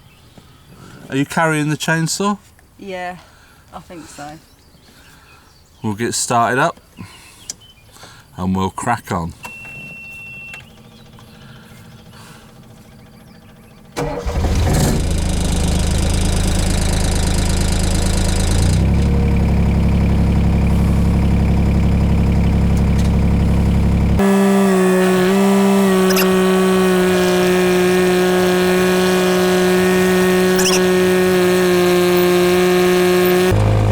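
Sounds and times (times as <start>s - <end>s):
diesel engine starting and running: 9.4s - 33.9s.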